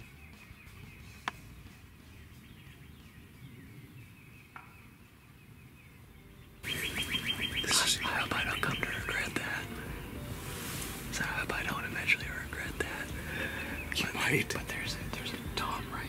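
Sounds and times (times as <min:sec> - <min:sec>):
faint songbird chirping: 0:00.0 - 0:16.0
close loud whispering: 0:07.6 - 0:09.9, 0:11.1 - 0:16.0.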